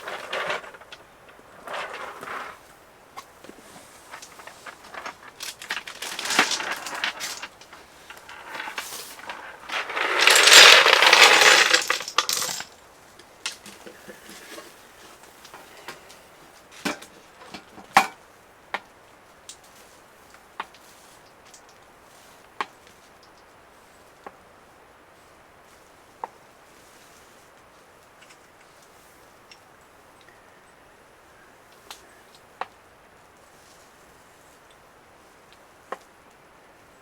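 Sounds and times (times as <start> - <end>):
small hard objects clinking: 4.1 - 12.8
loud rough noise: 8.1 - 12.7.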